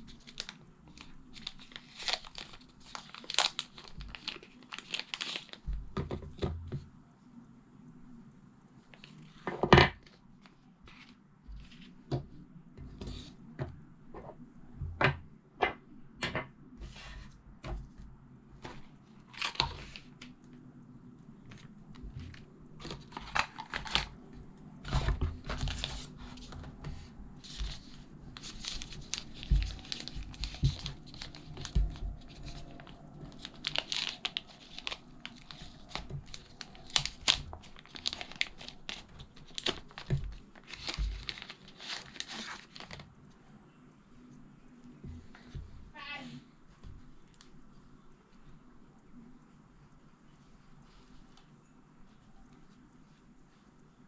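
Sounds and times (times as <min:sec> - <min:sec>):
packaging crinkling and tearing: 0:00.0 - 0:05.7, 0:19.2 - 0:20.4, 0:21.5 - 0:26.6, 0:27.4 - 0:43.2.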